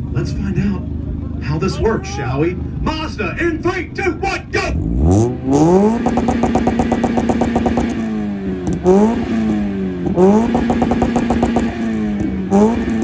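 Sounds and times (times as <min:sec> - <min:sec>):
car engine on rev limiter: 0:00.0 - 0:13.0.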